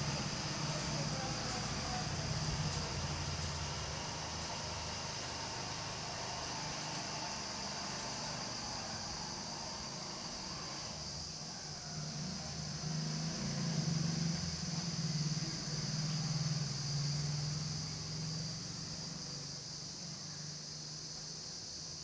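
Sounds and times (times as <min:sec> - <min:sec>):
insect chirring: 0:00.0 - 0:22.0
motor vehicle passing: 0:12.0 - 0:19.6.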